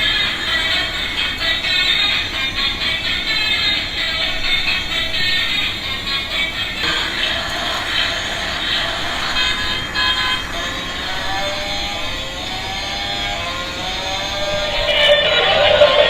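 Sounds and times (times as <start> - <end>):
toy electronic tones: 14.0 - 16.0.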